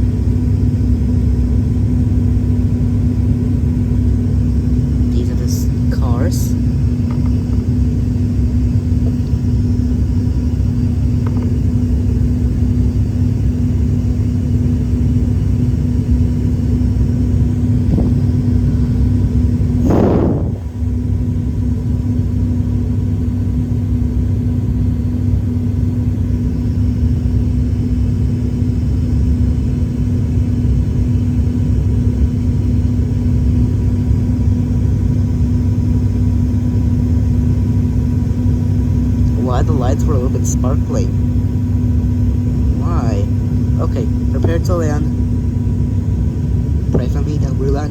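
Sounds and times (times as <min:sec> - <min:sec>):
airliner cabin engine drone: 0:00.0 - 0:47.9
constant hum tone: 0:00.0 - 0:47.9
short whoosh: 0:19.8 - 0:21.0.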